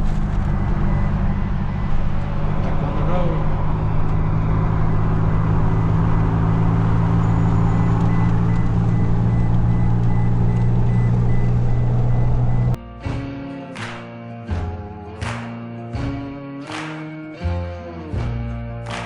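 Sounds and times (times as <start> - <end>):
car engine droning: 0.0 - 12.8
tyres on the road: 0.0 - 12.8.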